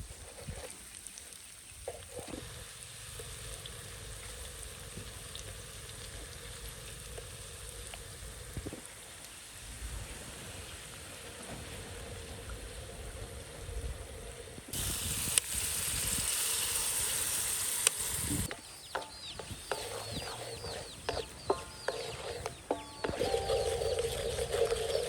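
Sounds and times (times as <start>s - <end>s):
food sizzling in hot oil: 14.7s - 25.0s
birds chirping: 18.3s - 25.0s.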